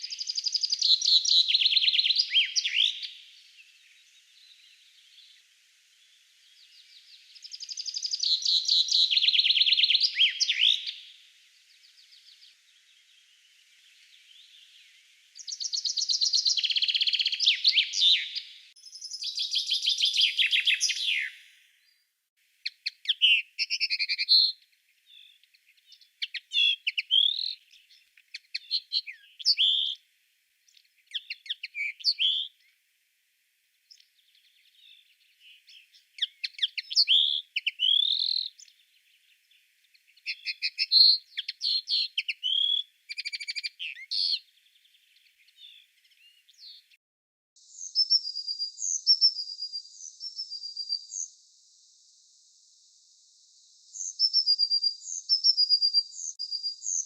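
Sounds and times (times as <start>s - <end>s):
bird whistled phrases: 0.0s - 3.2s, 7.6s - 11.0s, 15.4s - 21.4s, 23.0s - 24.5s, 26.3s - 27.6s, 36.2s - 38.6s, 40.3s - 44.4s, 47.7s - 51.3s, 54.0s - 57.0s.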